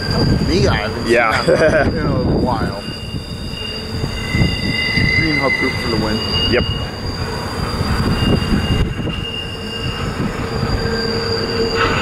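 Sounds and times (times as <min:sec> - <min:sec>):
container train rumbling past: 0:00.0 - 0:12.0
high-pitched wheel squeal: 0:00.0 - 0:12.0.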